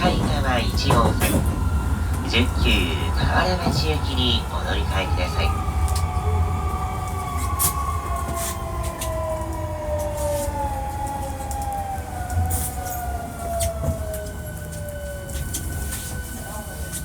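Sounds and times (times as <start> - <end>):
wheels clicking on track: 0.0 - 6.2
low train running rumble: 0.0 - 17.0.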